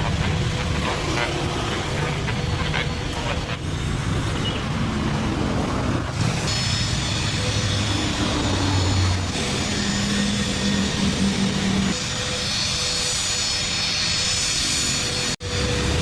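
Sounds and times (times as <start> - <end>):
plane engines whining: 0.0 - 16.0.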